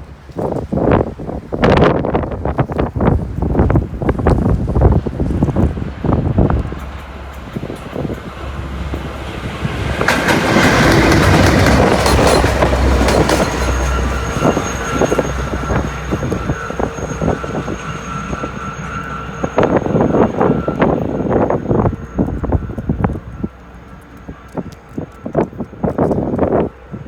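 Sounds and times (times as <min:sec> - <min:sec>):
train wheels clicking over rails: 0:02.5 - 0:27.0
steady high whine: 0:11.6 - 0:26.0.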